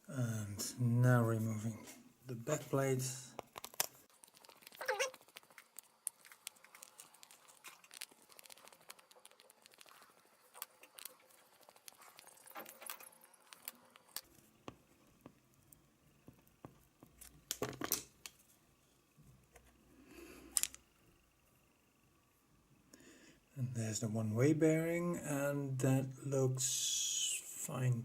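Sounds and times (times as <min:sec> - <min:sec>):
small metal parts clicking: 0:20.5 - 0:20.8.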